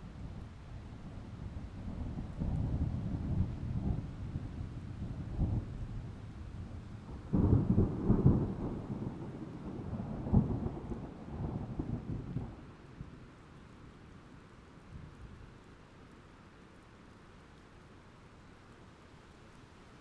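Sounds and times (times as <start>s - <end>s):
thunder rumbling: 7.1s - 12.7s.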